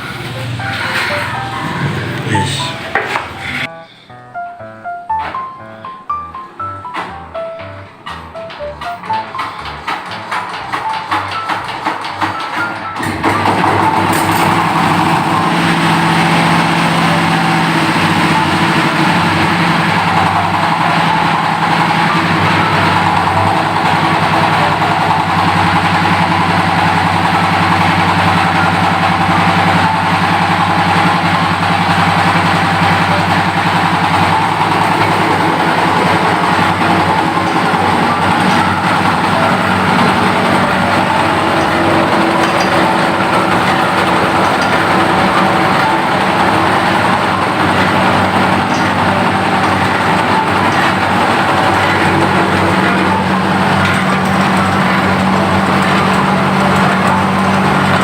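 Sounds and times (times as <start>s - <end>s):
grinding machine motor humming: 0.0s - 3.7s, 6.1s - 58.0s.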